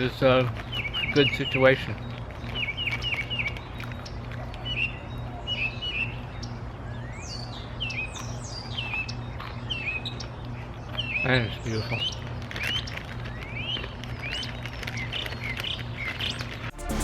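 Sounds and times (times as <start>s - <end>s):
songbirds chirping: 0.0s - 16.7s
steady low hum: 0.0s - 17.0s.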